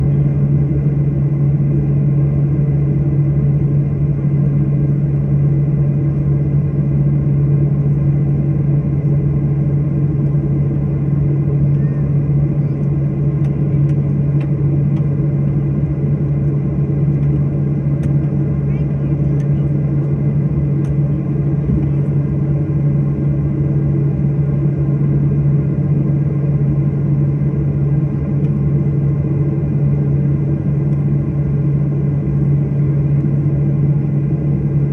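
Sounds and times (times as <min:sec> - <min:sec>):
airliner engine drone: 0:00.0 - 0:34.9.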